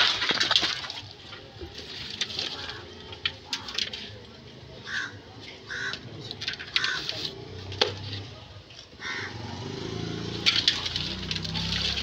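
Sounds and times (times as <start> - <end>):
faint background voices: 0.4 - 12.0
bird calling: 4.8 - 6.0, 9.0 - 9.4.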